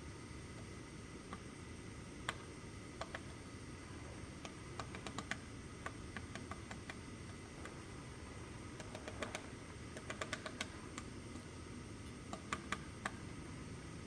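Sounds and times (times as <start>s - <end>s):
woodpecker tapping on wood: 8.8s - 10.7s.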